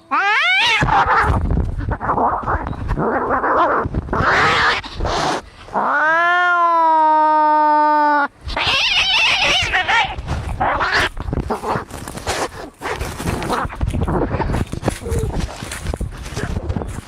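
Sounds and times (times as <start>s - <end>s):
cat yowling: 0.0s - 11.1s
cats hissing: 0.1s - 6.7s, 8.4s - 16.6s.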